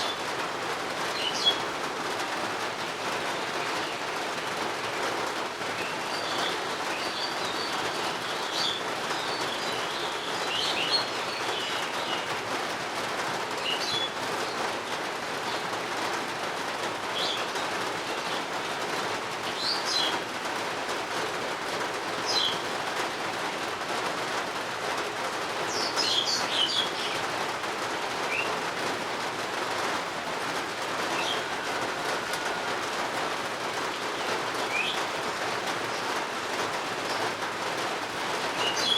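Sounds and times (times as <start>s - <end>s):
birds chirping: 0.0s - 0.4s, 1.0s - 1.8s, 5.4s - 12.4s, 13.5s - 15.8s, 17.0s - 20.2s, 22.2s - 22.9s, 25.6s - 27.6s, 28.2s - 28.8s, 30.6s - 37.4s, 38.2s - 38.9s
steady rain falling: 0.0s - 38.9s.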